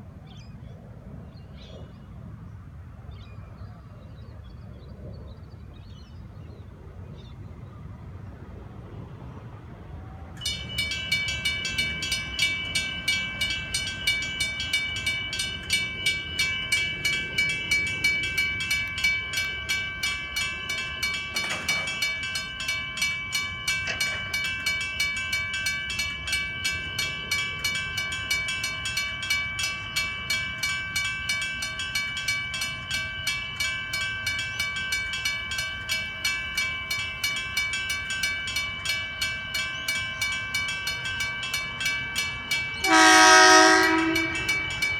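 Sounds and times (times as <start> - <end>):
level crossing bell ringing: 10.4 - 44.9.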